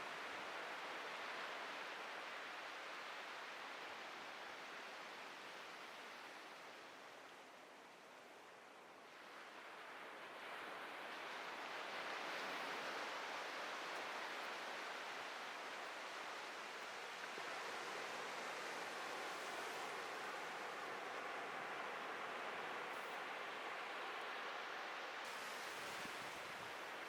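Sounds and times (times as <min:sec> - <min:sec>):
ocean waves breaking on beach: 0:09.1 - 0:27.0.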